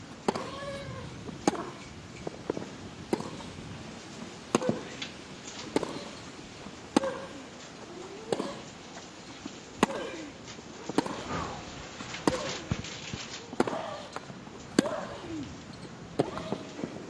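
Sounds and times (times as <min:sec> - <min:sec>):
ball bouncing: 0:00.2 - 0:00.6, 0:02.5 - 0:03.4
racquets striking tennis ball: 0:00.2 - 0:01.8, 0:02.4 - 0:03.6, 0:04.5 - 0:04.9, 0:05.6 - 0:06.2, 0:06.9 - 0:07.4, 0:08.2 - 0:08.6, 0:09.8 - 0:10.1, 0:10.9 - 0:11.3, 0:13.5 - 0:13.9, 0:16.2 - 0:16.6.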